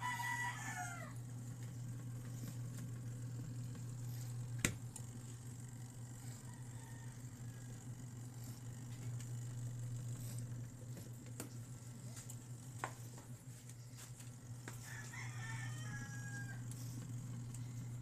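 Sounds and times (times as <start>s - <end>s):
rooster crowing: 0.0s - 1.3s, 6.3s - 8.1s, 14.7s - 17.0s
low steady hum: 0.0s - 18.0s.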